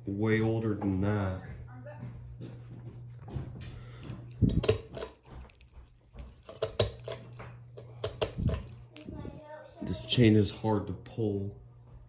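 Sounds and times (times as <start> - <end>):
ceiling fan humming: 0.0 - 12.0
pull chain clicking and rattling: 4.3 - 9.0.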